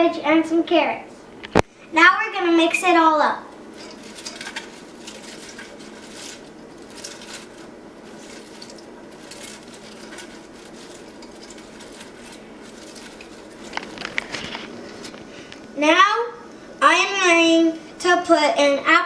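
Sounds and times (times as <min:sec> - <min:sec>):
vegetables stirred in a bowl: 0:02.5 - 0:15.6.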